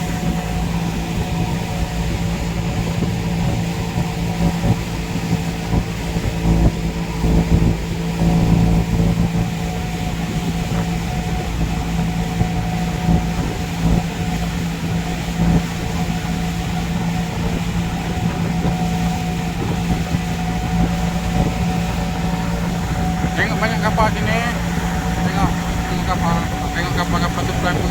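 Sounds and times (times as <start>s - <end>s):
boat engine droning: 0.0s - 27.9s
rushing low rumble: 7.5s - 27.9s.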